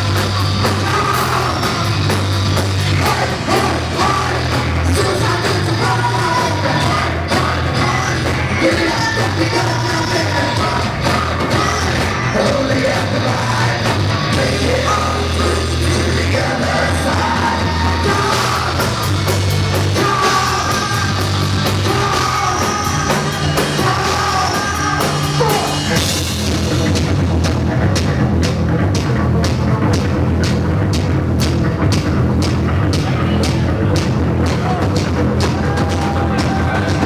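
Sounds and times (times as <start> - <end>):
person singing: 0.0 - 26.2
live rock band playing: 0.0 - 37.0.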